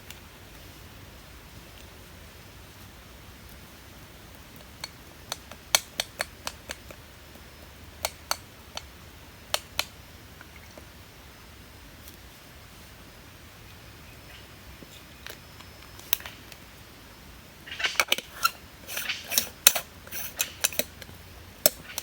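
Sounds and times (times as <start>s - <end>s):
hard objects clicking together: 17.8s - 22.0s.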